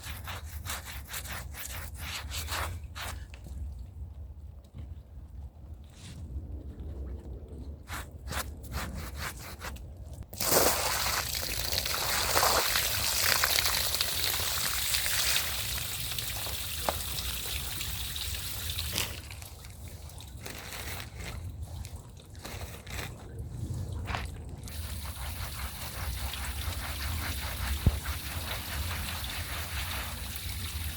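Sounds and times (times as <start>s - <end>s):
scrubbing strokes: 0.0s - 3.3s, 7.9s - 11.3s, 19.8s - 30.9s
water spraying onto a rug: 10.4s - 19.1s, 24.7s - 30.9s.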